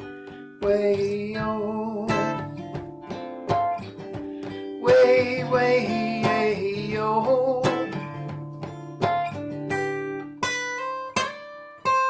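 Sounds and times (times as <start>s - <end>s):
acoustic guitar strumming: 0.0s - 12.0s
man singing: 0.6s - 2.8s, 4.8s - 8.3s.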